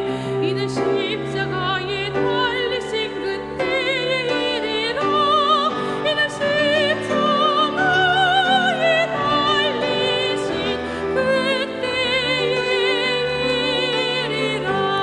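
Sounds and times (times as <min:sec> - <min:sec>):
choir singing: 0:00.0 - 0:15.0
high voice singing with vibrato: 0:00.0 - 0:15.0.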